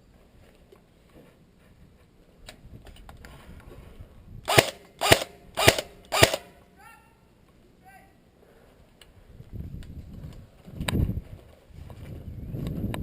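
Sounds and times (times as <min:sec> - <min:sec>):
airsoft gun shots: 0:04.5 - 0:06.6.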